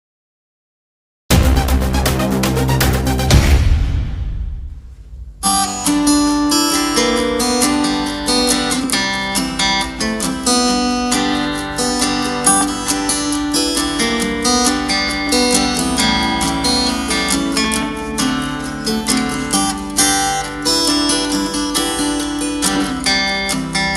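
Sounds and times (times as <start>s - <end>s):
acoustic guitar music from speaker: 5.4s - 23.9s.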